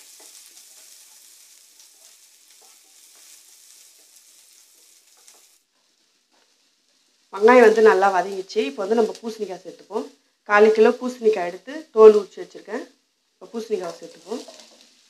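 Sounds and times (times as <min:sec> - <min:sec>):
wooden spatula scraping pan: 0:00.0 - 0:07.2, 0:13.8 - 0:15.0
onions sizzling in oil: 0:00.0 - 0:15.0.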